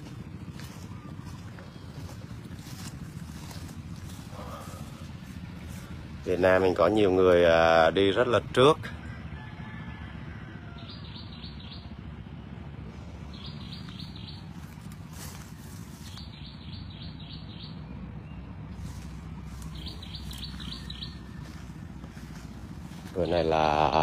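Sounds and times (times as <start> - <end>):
steady low rumble: 0.0 - 9.4, 10.9 - 24.0
bird chirping rapidly: 13.2 - 23.8.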